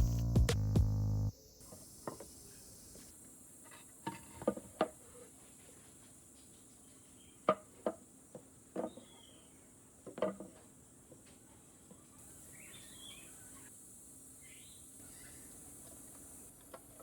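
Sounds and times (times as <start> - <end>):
faint high chirping: 0.0 - 3.2, 11.5 - 16.5.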